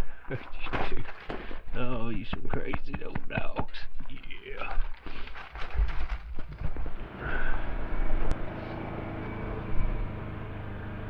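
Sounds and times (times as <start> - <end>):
vehicle engine idling: 6.9 - 11.0.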